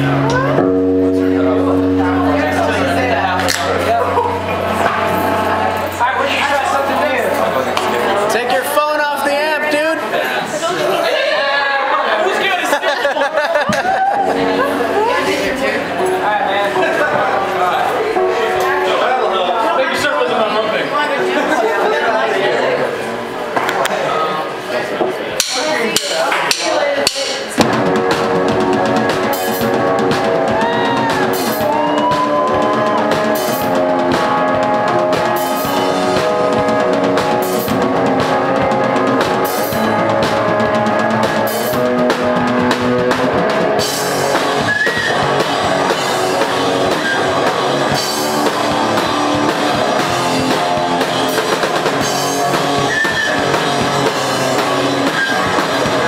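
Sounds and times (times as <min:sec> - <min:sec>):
drum hits: 0:00.0 - 0:08.0, 0:25.4 - 0:56.0
rock band playing live: 0:00.0 - 0:10.2, 0:12.3 - 0:22.1, 0:25.4 - 0:56.0.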